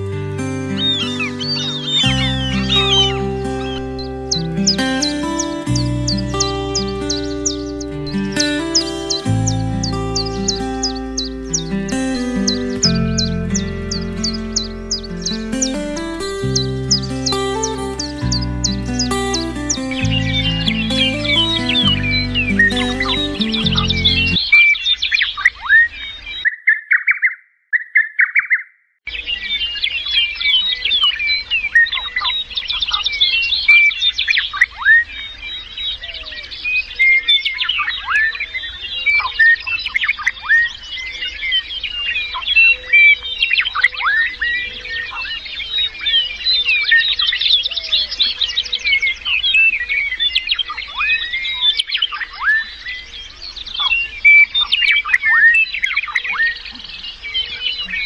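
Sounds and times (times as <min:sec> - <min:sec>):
birds chirping and calling: 0:00.0 - 0:24.5.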